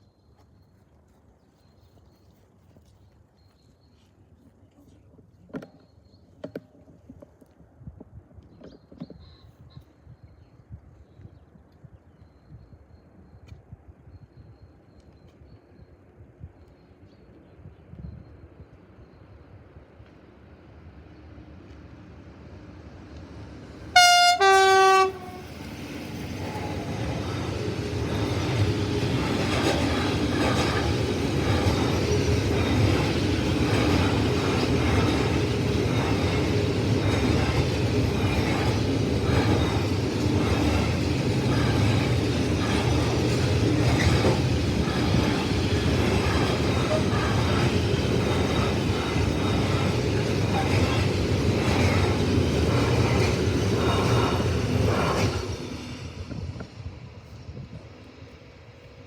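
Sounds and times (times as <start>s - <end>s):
train rumbling past: 19.2s - 59.0s
two-tone train horn: 23.9s - 25.6s
wheels clattering over rail joints: 25.8s - 55.5s.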